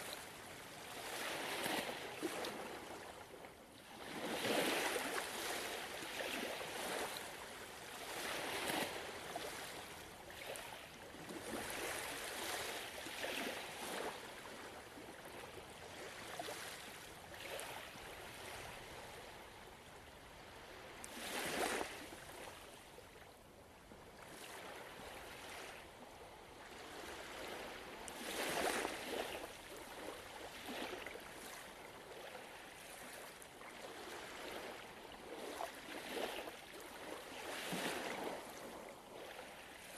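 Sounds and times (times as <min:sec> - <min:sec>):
ocean waves washing ashore: 0:00.0 - 0:23.0, 0:24.1 - 0:39.9.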